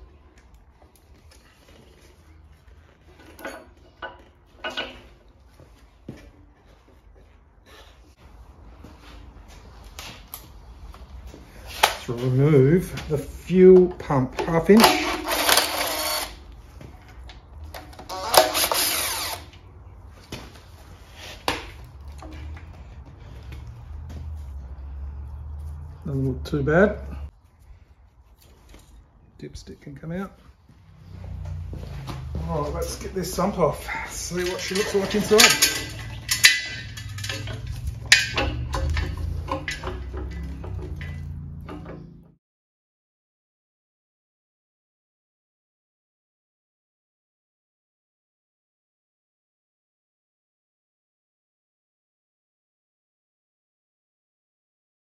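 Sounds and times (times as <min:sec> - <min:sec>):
cordless power tool spinning: 0:14.8 - 0:16.4, 0:18.0 - 0:19.6.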